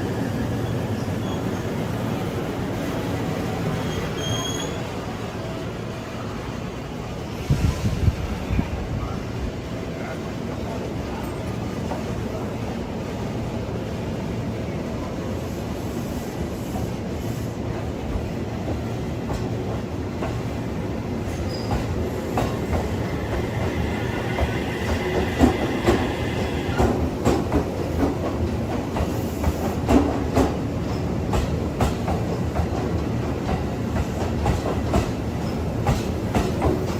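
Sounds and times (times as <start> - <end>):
train wheel squeal: 0.0 - 2.0, 3.5 - 5.2, 21.3 - 27.0
train rumbling on rails: 0.0 - 36.9.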